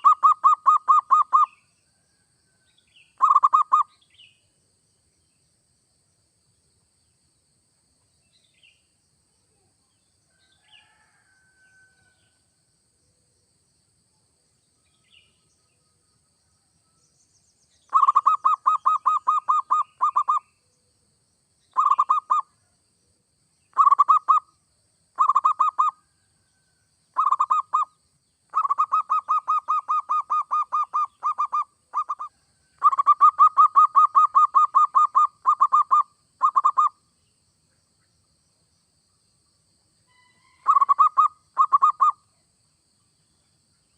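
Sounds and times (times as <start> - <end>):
dove cooing: 0.0 - 1.5, 3.2 - 3.8, 17.9 - 20.4, 21.8 - 22.4, 25.2 - 25.9, 27.2 - 27.9, 28.5 - 36.9, 40.6 - 42.1
faint bird chirps: 0.0 - 5.5, 8.0 - 12.4, 14.6 - 21.0, 21.6 - 22.8, 23.6 - 38.2, 40.0 - 43.9.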